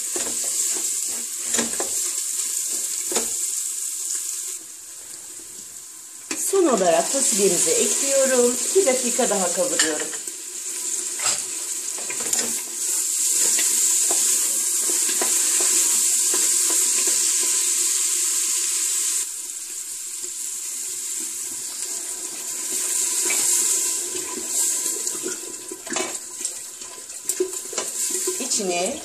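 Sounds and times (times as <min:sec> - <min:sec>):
beans and meat sizzling: 0:00.0 - 0:29.0.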